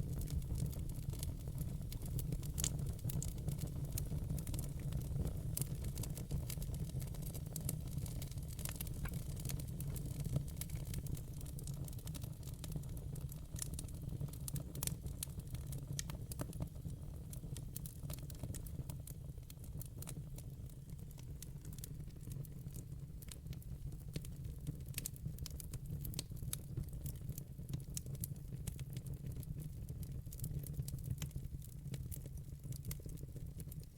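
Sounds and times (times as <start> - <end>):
low rumble of flames: 0.0 - 28.2
logs crackling and popping: 0.1 - 16.6, 24.2 - 28.1.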